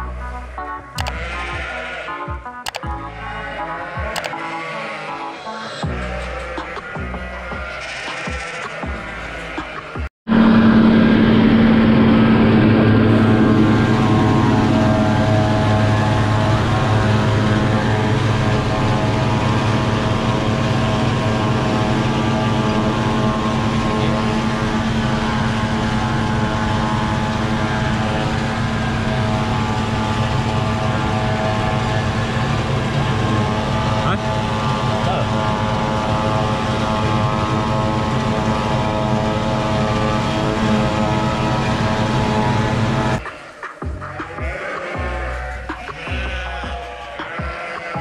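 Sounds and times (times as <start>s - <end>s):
tractor engine running: 1.0s - 1.4s, 2.6s - 3.0s, 10.3s - 47.4s.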